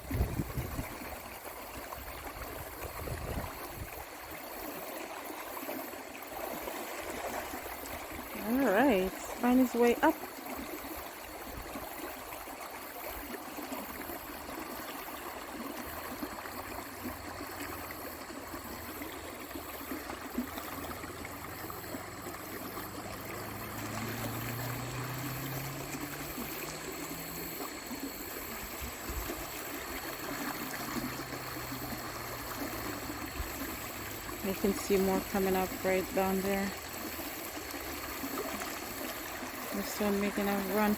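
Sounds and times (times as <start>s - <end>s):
stream water flowing: 0.0s - 40.9s
low hum: 20.3s - 37.0s.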